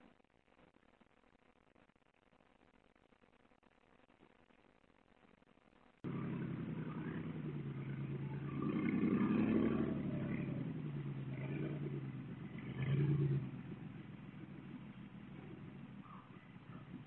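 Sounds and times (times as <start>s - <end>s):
car engine revving: 6.0s - 17.0s.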